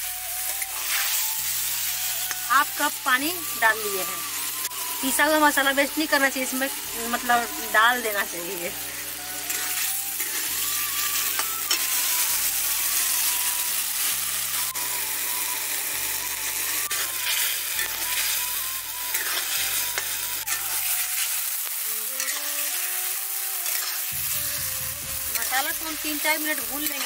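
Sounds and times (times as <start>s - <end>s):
potatoes sizzling in a pan: 0.0s - 27.0s
metal spatula scraping a pan: 0.4s - 2.5s, 9.0s - 12.4s, 16.9s - 21.4s, 22.0s - 24.6s.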